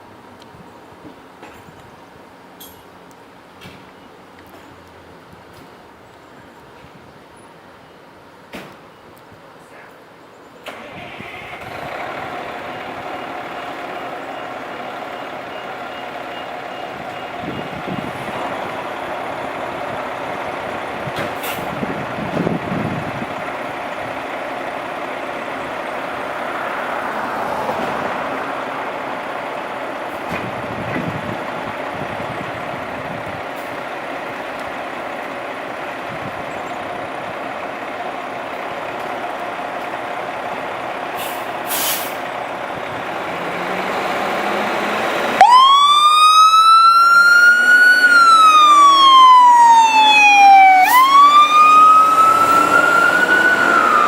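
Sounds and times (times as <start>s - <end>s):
fire truck engine rumble: 0.0s - 54.0s
brief hiss: 41.2s - 42.2s
siren wailing: 45.2s - 54.0s.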